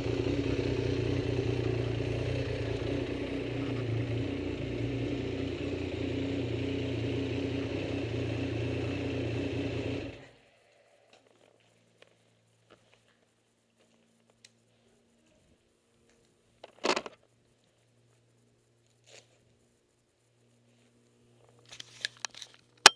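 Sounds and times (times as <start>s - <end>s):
vehicle engine running: 0.0s - 12.7s.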